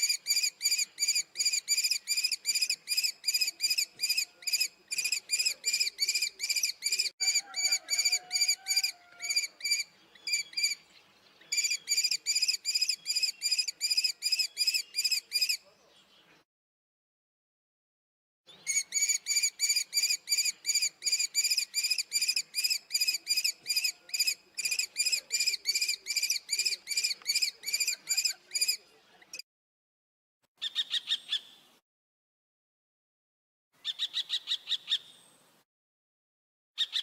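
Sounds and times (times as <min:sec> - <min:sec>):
kestrel calling: 0:00.0 - 0:10.8, 0:11.4 - 0:15.6, 0:18.6 - 0:28.8, 0:30.6 - 0:31.6, 0:33.8 - 0:35.1, 0:36.8 - 0:37.0.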